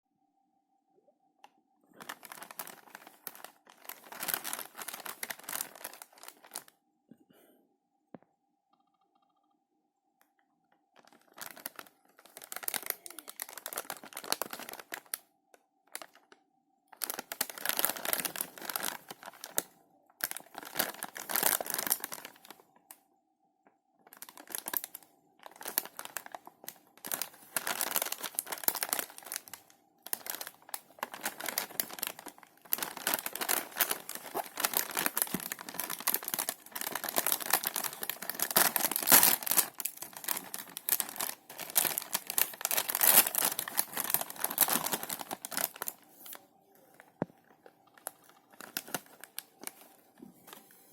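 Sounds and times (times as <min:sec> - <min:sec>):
plastic snack packet crinkling: 0:01.9 - 0:06.7, 0:10.9 - 0:15.2, 0:15.9 - 0:23.0, 0:24.0 - 0:50.6.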